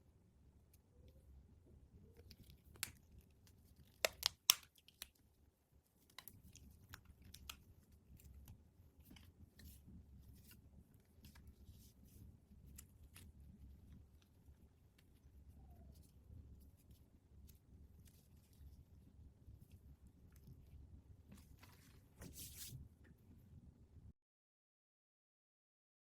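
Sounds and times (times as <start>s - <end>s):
packaging clicks and snaps: 3.9s - 5.2s, 6.0s - 7.6s.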